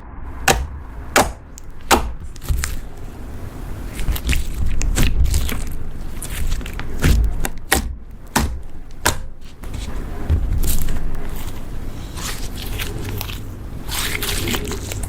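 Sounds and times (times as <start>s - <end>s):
slime squished by hand: 3.7s - 15.0s.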